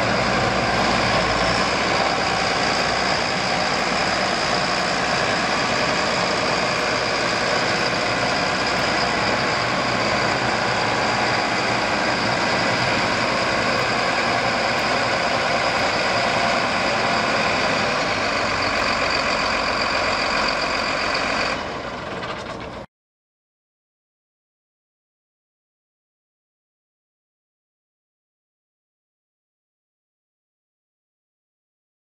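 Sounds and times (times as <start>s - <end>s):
high whine: 0.0s - 21.8s
tractor diesel engine running: 0.0s - 22.9s.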